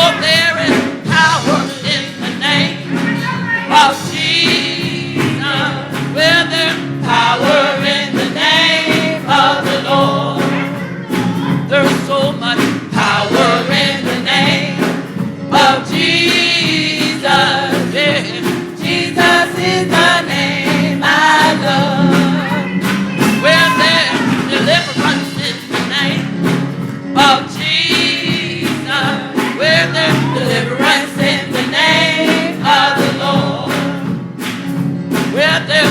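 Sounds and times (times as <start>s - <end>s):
choir singing gospel: 0.0s - 35.9s
drums: 0.0s - 35.9s
organ: 0.0s - 35.9s.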